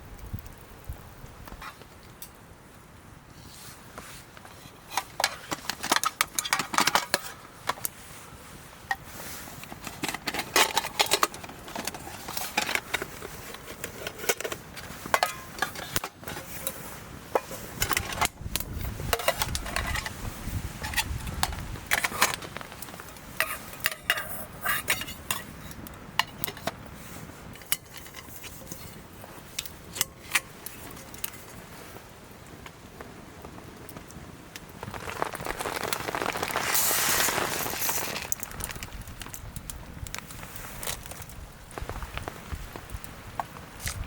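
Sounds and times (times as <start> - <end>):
metal cookware clinking and clattering: 9.8 - 16.8, 19.1 - 20.2, 23.4 - 25.5.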